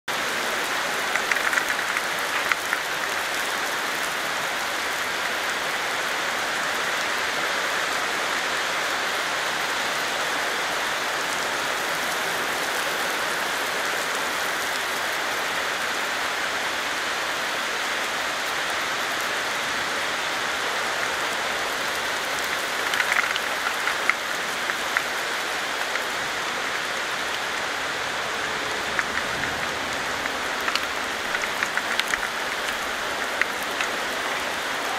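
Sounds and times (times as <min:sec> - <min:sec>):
steady rain hissing: 0:00.0 - 0:34.9
drops splashing: 0:00.4 - 0:03.6, 0:20.9 - 0:34.9.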